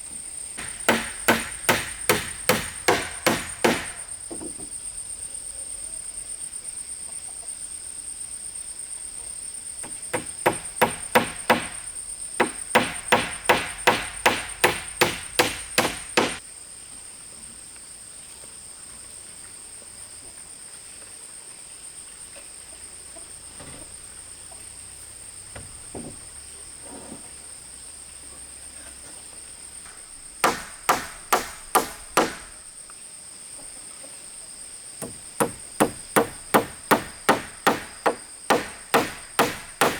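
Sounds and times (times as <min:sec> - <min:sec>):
insects droning: 0:00.0 - 0:39.9
tool striking wood: 0:00.6 - 0:04.7, 0:09.8 - 0:16.4, 0:29.9 - 0:32.6, 0:35.0 - 0:39.9.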